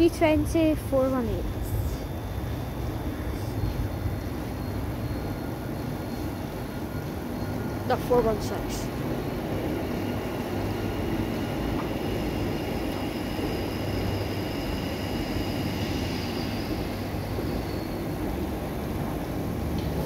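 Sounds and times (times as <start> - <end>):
train wheels rumbling on track: 0.0 - 20.0
faint high-pitched squeal: 12.2 - 18.5.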